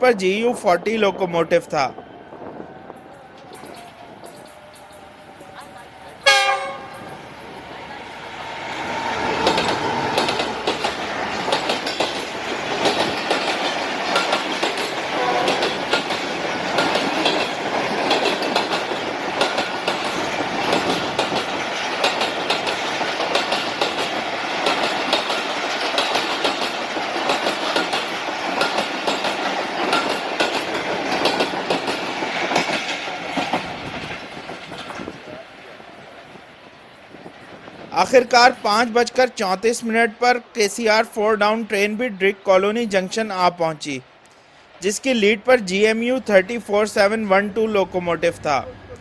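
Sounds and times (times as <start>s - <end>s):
train coaches rumbling: 0.0s - 49.0s
wheels clacking over rail joints: 3.4s - 37.9s
train horn: 6.2s - 7.1s, 15.1s - 15.7s.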